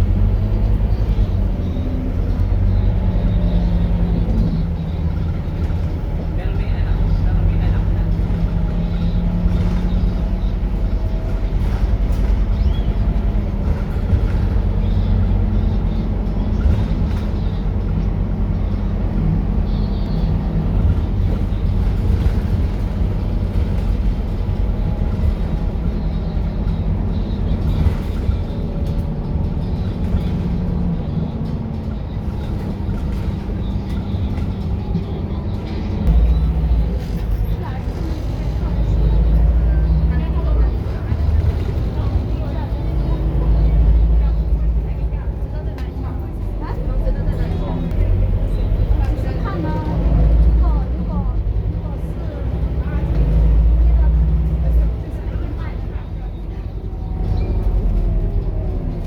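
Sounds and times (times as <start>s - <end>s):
low rumble: 0.0s - 55.2s
bus diesel engine drone: 0.0s - 59.0s.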